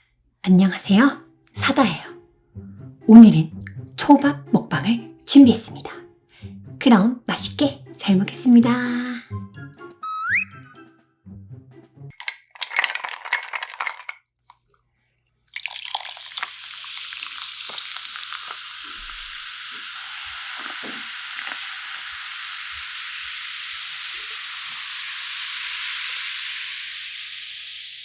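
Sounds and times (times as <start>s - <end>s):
sizzle-like hiss: 15.6s - 28.0s.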